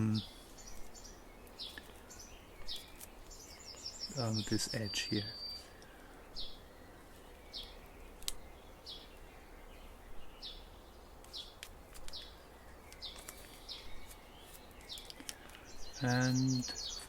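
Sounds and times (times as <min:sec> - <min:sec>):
bird chirping: 0:00.0 - 0:17.0
paper rustling and creasing: 0:01.7 - 0:03.6, 0:11.6 - 0:12.3, 0:12.9 - 0:15.6.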